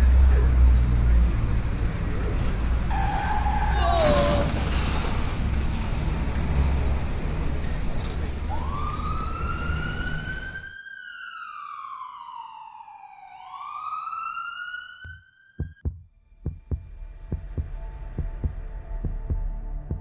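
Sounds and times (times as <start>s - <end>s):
emergency siren wailing: 0.1s - 4.6s, 8.3s - 15.8s.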